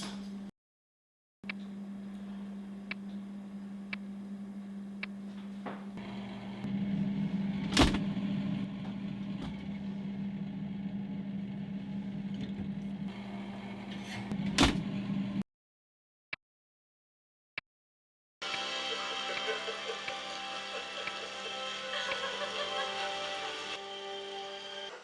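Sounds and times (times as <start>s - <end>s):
steady low hum: 1.5s - 15.4s.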